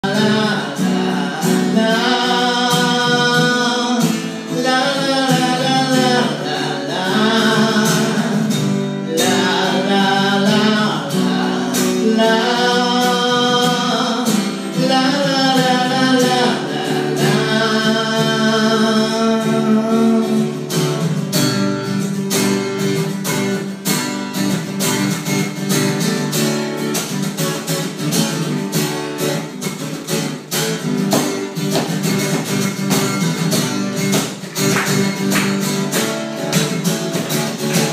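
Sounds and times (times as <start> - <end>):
man singing: 0.0 - 20.9, 35.2 - 37.9
guitar strumming: 0.0 - 37.9.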